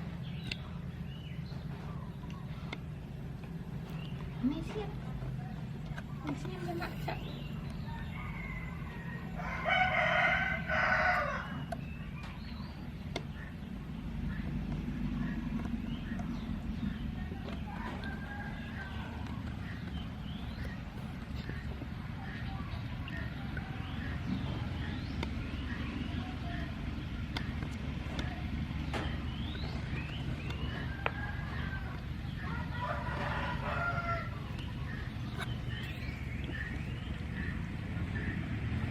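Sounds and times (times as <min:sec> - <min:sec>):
steady low hum: 0:00.0 - 0:38.9
rooster crowing: 0:07.8 - 0:11.7, 0:30.7 - 0:35.0.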